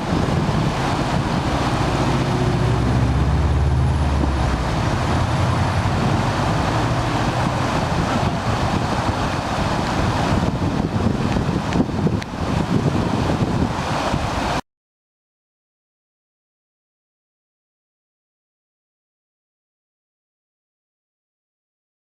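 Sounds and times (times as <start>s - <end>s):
passing vehicle engine drone: 0.0s - 10.6s
waterfall rushing: 0.0s - 14.6s.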